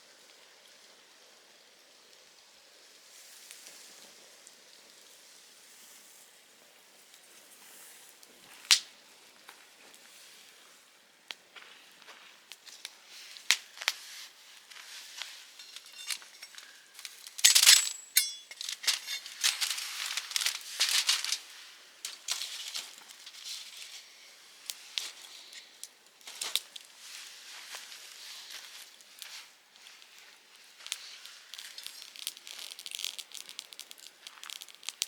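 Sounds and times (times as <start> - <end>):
firewood crackling and popping: 8.0 - 35.0.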